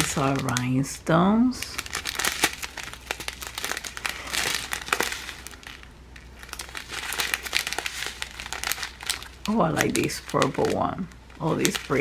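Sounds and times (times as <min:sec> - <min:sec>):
plastic baggies crinkling: 0:00.0 - 0:12.0.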